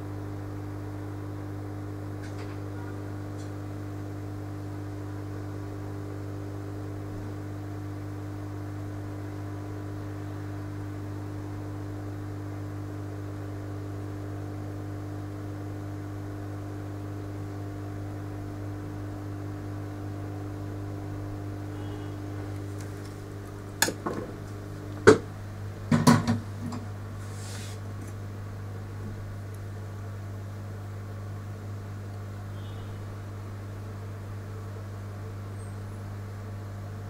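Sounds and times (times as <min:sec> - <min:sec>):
low electrical hum: 0:00.0 - 0:37.0
faint high tone: 0:21.7 - 0:22.2.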